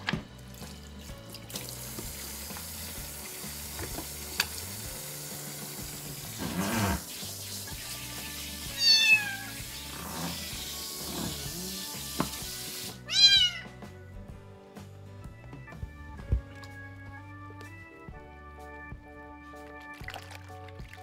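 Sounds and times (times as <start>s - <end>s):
tap water running into sink: 0.1s - 13.0s, 19.9s - 21.0s
kitten meowing: 8.7s - 9.6s, 13.0s - 13.8s.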